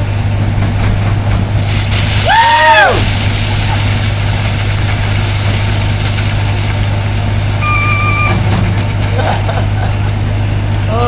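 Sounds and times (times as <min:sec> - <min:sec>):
loader engine idling: 0:03.0 - 0:11.0.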